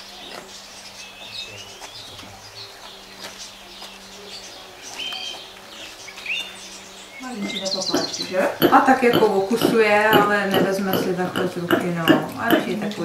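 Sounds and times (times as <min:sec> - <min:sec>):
birds chirping: 0:00.0 - 0:13.0
high whistled bird calls: 0:04.3 - 0:09.6.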